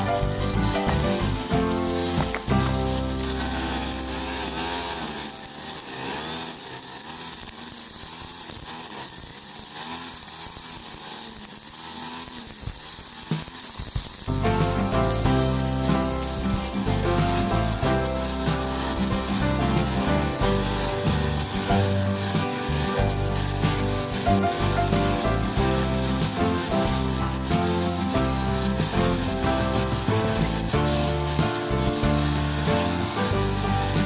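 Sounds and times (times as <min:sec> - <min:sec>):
loud background music: 0:00.0 - 0:05.3, 0:14.3 - 0:34.0
brush cutter cutting grass: 0:00.0 - 0:34.0.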